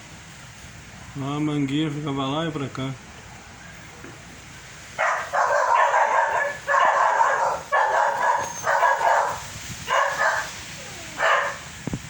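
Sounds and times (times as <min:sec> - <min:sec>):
low background noise: 0:00.0 - 0:12.0
dog barking: 0:05.0 - 0:11.7.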